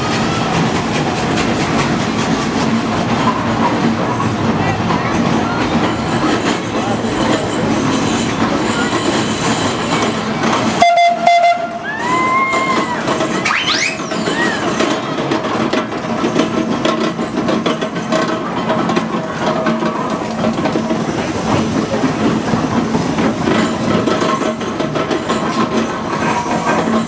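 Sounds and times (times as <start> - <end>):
steam engine hissing: 0.0 - 27.0.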